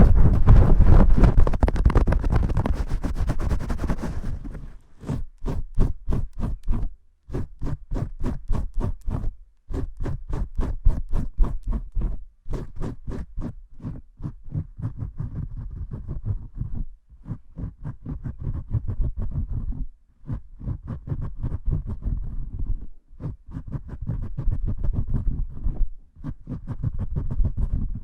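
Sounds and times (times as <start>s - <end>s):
scrubbing and scratching hair: 0.0s - 6.8s.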